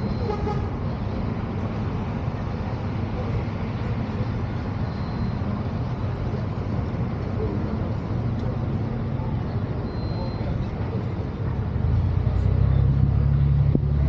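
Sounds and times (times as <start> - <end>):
faint voices: 0.0 - 14.0
road traffic rumble: 0.0 - 14.0.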